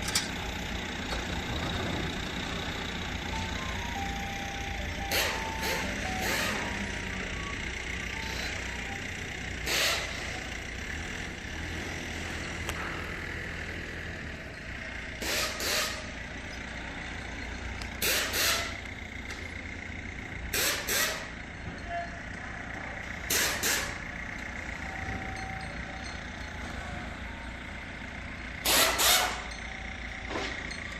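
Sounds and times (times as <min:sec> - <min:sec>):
vehicle hum: 0:00.0 - 0:30.9
truck air system hissing: 0:05.0 - 0:07.2, 0:09.5 - 0:10.5, 0:15.2 - 0:16.2, 0:18.0 - 0:18.9, 0:20.5 - 0:21.3, 0:23.3 - 0:24.1, 0:28.6 - 0:29.4.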